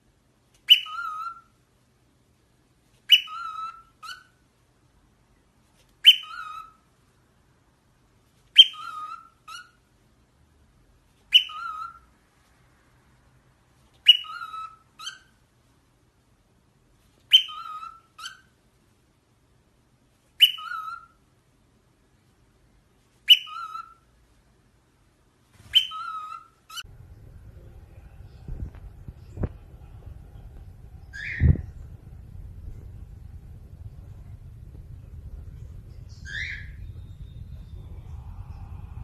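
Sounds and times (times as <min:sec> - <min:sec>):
low background rumble: 0:26.8 - 0:39.0.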